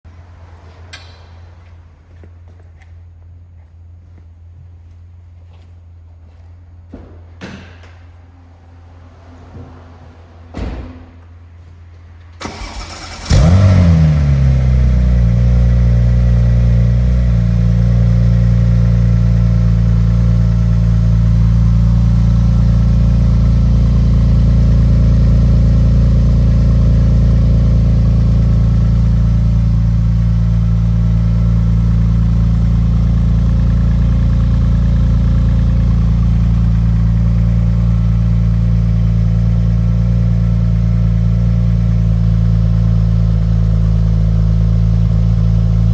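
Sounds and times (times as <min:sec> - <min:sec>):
car engine cold start and idle: 0:10.7 - 0:45.9.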